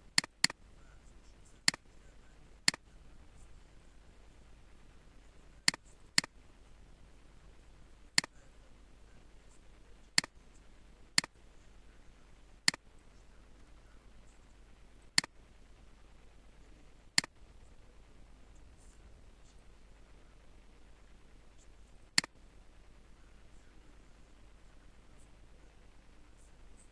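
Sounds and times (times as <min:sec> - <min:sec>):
computer mouse clicking: 0:00.0 - 0:00.6, 0:01.6 - 0:01.8, 0:02.7 - 0:02.9, 0:05.6 - 0:06.3, 0:10.2 - 0:10.4, 0:15.2 - 0:15.4, 0:17.2 - 0:17.4.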